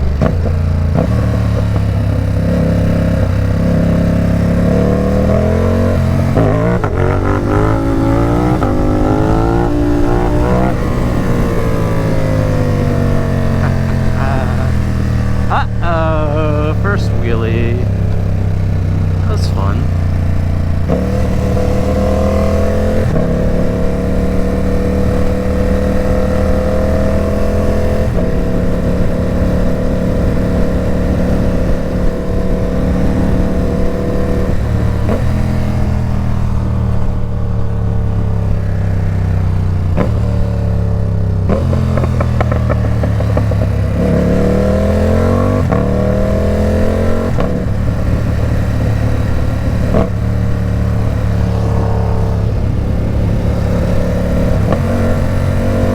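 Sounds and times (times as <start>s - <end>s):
motorcycle engine with loud exhaust: 0.0s - 55.9s.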